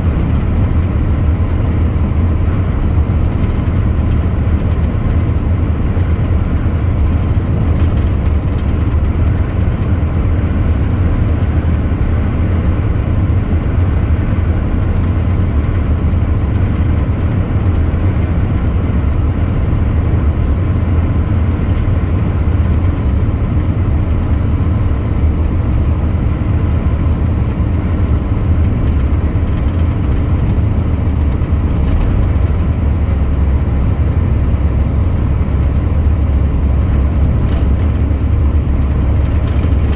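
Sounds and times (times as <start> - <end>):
truck engine and road rumble: 0.0 - 39.9.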